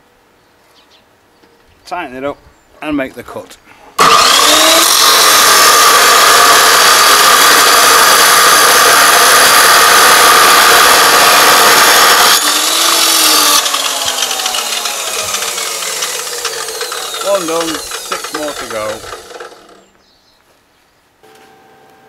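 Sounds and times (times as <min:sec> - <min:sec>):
metal-cutting saw cutting steel: 0:04.0 - 0:19.9.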